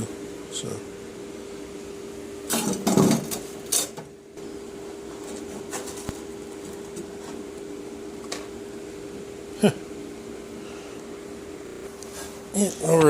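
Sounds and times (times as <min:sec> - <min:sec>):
steady machine hum: 0:00.0 - 0:13.0
clattering rustling noises: 0:05.0 - 0:07.4.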